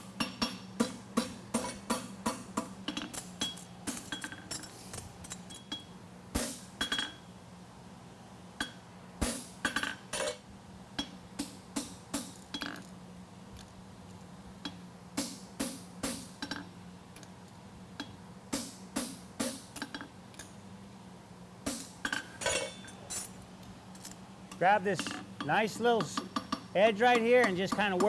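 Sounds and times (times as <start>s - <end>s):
steady low hum: 0.0s - 28.0s
hammer clinking on anvil: 22.2s - 23.0s.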